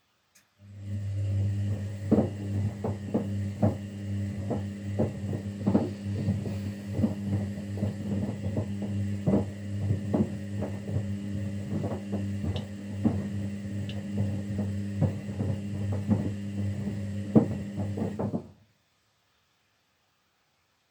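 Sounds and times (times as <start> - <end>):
washing machine humming: 0.6 - 18.6
soft knocks: 2.0 - 18.5.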